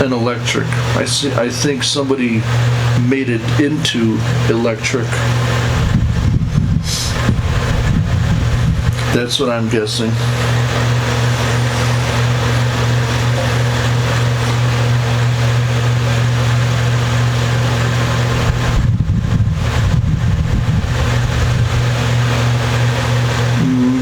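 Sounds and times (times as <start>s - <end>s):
low electrical hum: 0.0s - 24.0s
irregular low rumbling: 5.2s - 17.1s, 18.1s - 22.2s
even hiss: 6.8s - 7.4s, 9.0s - 14.8s.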